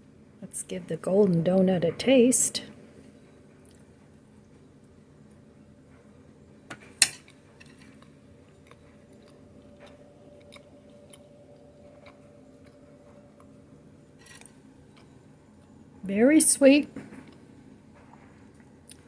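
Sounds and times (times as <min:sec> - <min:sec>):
steady low hum: 0:00.0 - 0:19.0
person chewing: 0:07.2 - 0:15.8, 0:18.1 - 0:19.0.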